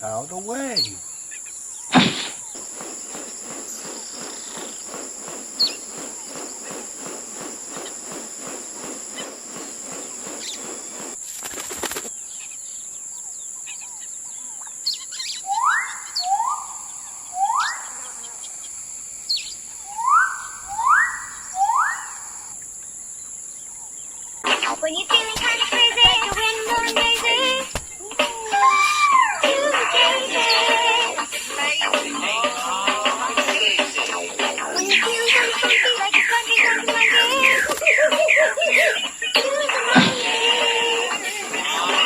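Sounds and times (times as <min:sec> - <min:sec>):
insect chorus: 0:00.0 - 0:42.0
bird whistling calls: 0:00.1 - 0:07.1, 0:14.8 - 0:18.1, 0:19.3 - 0:22.5, 0:24.4 - 0:40.4
fast even pulsing: 0:01.9 - 0:12.1, 0:24.4 - 0:42.0
rustling: 0:01.9 - 0:12.2, 0:24.4 - 0:34.0.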